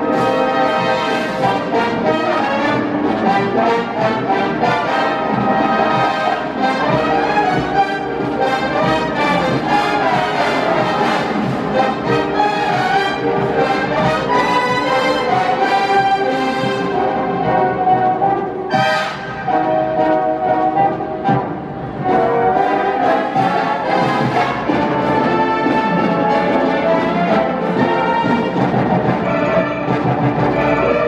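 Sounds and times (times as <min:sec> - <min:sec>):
steady drum beat: 0:00.0 - 0:19.4
wind band playing: 0:00.0 - 0:31.0.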